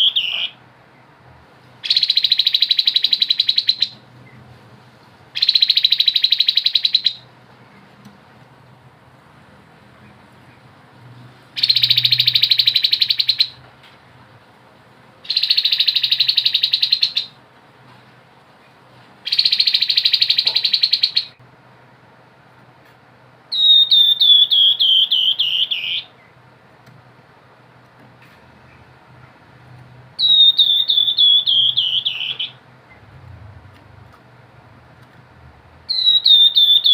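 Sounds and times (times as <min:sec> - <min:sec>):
babbler trilling song: 0:00.0 - 0:00.6, 0:01.8 - 0:04.4, 0:05.4 - 0:07.3, 0:11.6 - 0:13.6, 0:15.2 - 0:17.4, 0:19.2 - 0:21.4, 0:23.5 - 0:26.3, 0:30.2 - 0:33.0, 0:35.9 - 0:36.9.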